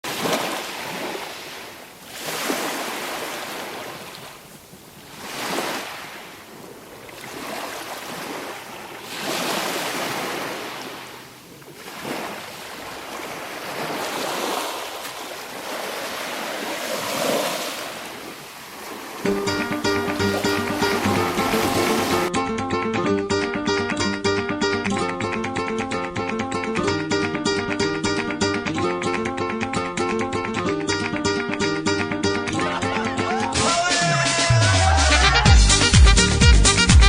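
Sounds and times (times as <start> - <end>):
sea waves breaking on shore: 0.0 - 22.3.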